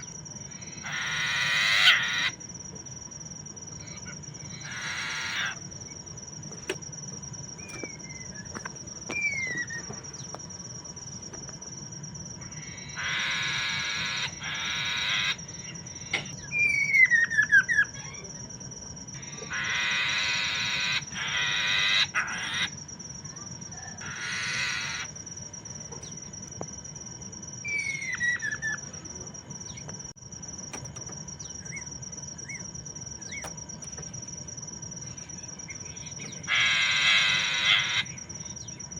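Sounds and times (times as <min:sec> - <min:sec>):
bird harsh rasping chatter: 0:00.6 - 0:02.4, 0:03.8 - 0:05.7, 0:12.5 - 0:16.1, 0:19.2 - 0:22.8, 0:24.0 - 0:25.1, 0:35.3 - 0:38.2
descending whistled bird notes: 0:07.6 - 0:10.3, 0:16.3 - 0:18.3, 0:27.6 - 0:28.9.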